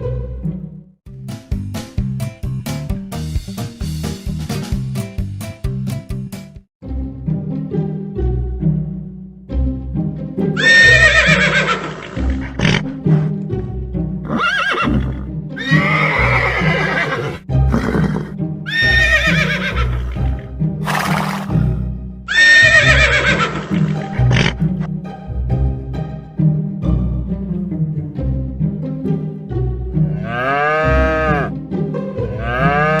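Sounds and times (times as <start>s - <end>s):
background music with bass line: 0.0s - 33.0s
horse neighing: 10.6s - 13.0s, 14.2s - 24.8s, 30.1s - 31.5s, 32.4s - 33.0s.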